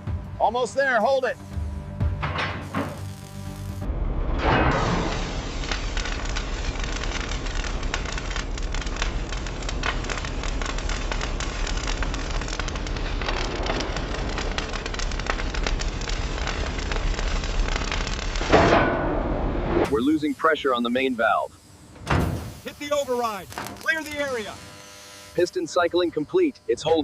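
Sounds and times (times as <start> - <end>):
constant low hum: 0.0 - 27.0
crackling hiss with clicks: 2.6 - 3.9, 4.8 - 18.6, 19.9 - 26.2.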